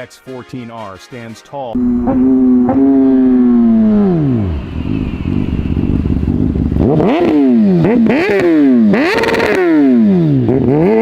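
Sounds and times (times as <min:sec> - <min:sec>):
motorcycle engine revving: 0:01.8 - 0:11.0.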